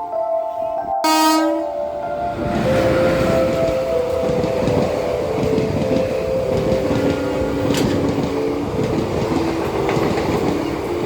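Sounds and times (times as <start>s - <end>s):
train wheels rumbling on rails: 2.2s - 11.0s.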